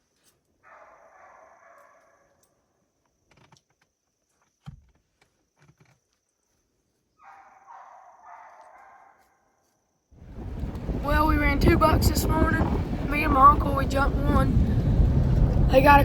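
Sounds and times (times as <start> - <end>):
distant hounds baying: 0.6 - 2.4, 7.2 - 9.6.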